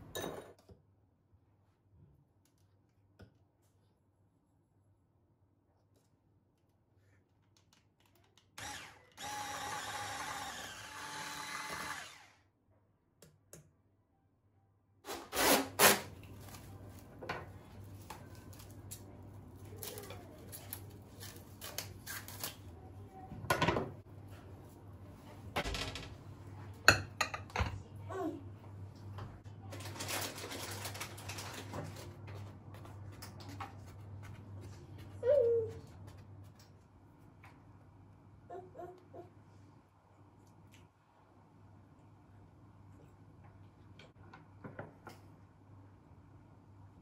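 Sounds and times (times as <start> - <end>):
kitchen appliance motor whining: 8.6 - 12.4.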